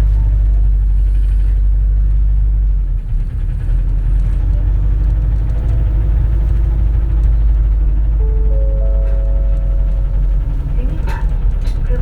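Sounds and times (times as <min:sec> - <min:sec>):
bus engine and road rumble: 0:00.0 - 0:12.0
faint drone: 0:06.9 - 0:12.0.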